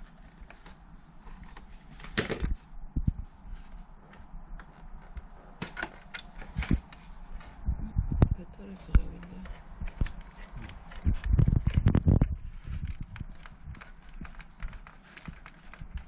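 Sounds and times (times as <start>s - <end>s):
clicks and knocks of hard parts: 4.6s - 7.0s.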